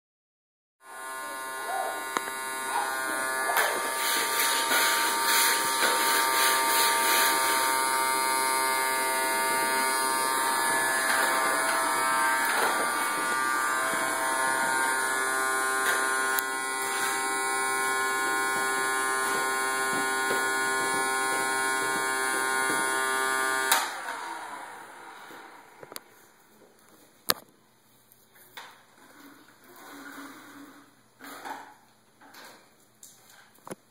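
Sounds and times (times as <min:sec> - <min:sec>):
vacuum cleaner motor whining: 0:00.8 - 0:26.5.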